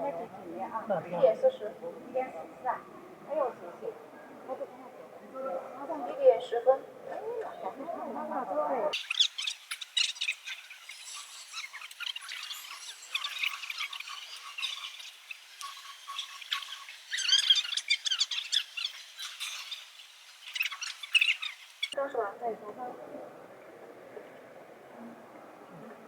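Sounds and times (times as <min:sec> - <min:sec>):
small birds chirping and squawking: 0:05.5 - 0:22.1.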